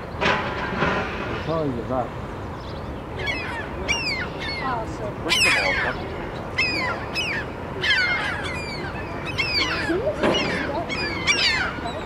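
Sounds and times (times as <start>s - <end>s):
waterbirds calling shrilly: 2.2s - 12.0s.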